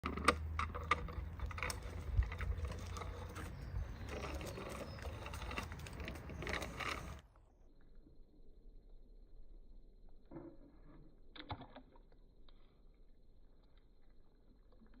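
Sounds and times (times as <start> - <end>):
plastic toys clicking and rattling: 0.0 - 7.2.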